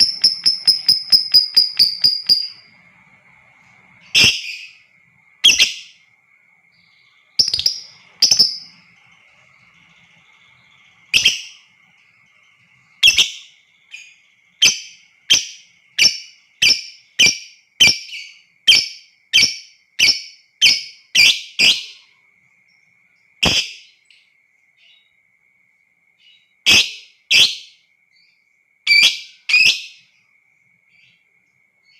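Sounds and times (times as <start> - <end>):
faint steady high tone: 0.0 - 31.9
lovebird shrieking calls: 11.1 - 11.7, 13.0 - 14.0.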